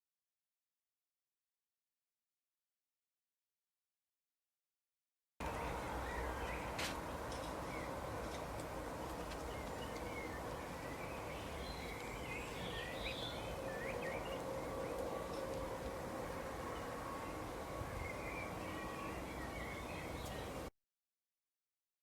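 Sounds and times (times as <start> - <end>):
birds chirping: 5.4 - 20.7
outdoor background noise: 5.4 - 20.7.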